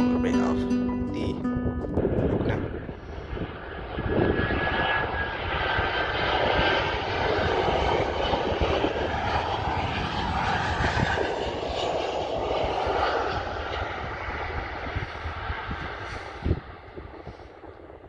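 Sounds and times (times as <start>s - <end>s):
airliner engines running: 0.0s - 0.8s, 1.7s - 18.0s.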